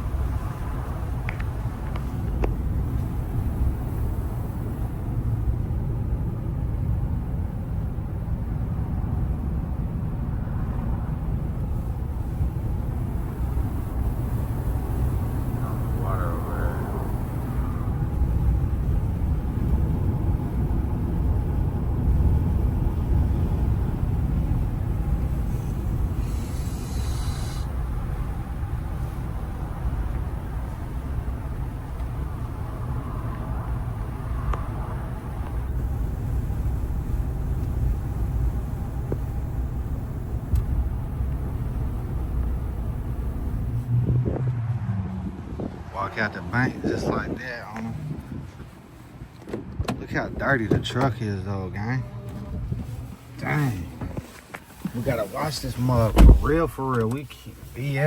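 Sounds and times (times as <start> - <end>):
truck engine and road rumble: 0.0 - 58.0
short hiss: 25.5 - 27.7.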